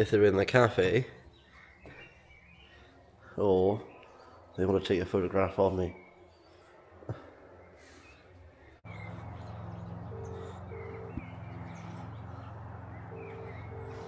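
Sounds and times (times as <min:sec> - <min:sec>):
small birds chirping: 0:00.0 - 0:14.0
steady low hum: 0:08.8 - 0:14.0
low cooing bird call: 0:08.9 - 0:14.0.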